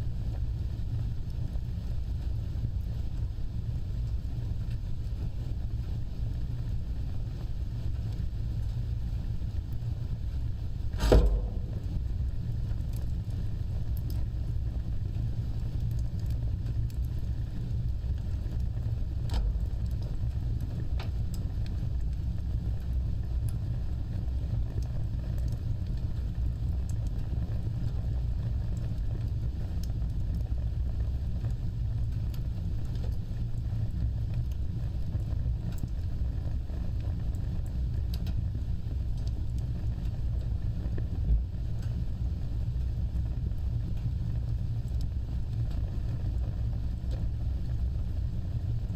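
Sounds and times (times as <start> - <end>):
fireplace fire burning: 0.0 - 48.9
fire crackling and popping: 0.1 - 48.9.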